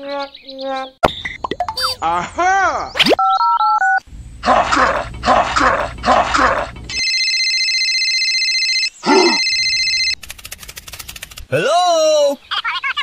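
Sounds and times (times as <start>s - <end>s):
high electronic ringing tone: 6.9s - 10.2s.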